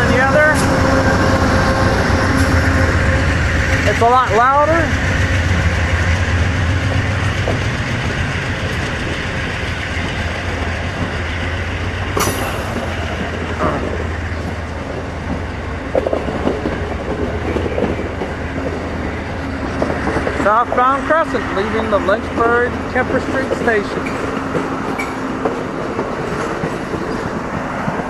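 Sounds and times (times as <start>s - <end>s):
diesel locomotive engine rumble: 0.0s - 28.0s
train clattering on rails: 0.0s - 28.0s
sharp metallic clank: 12.2s - 13.5s.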